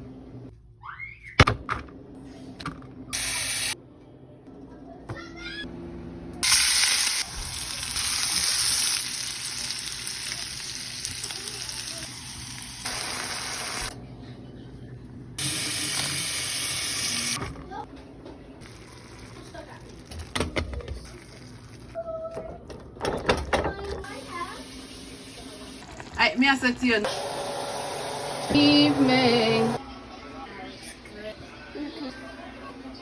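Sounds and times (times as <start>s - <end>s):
food sizzling in hot oil: 6.4s - 13.9s.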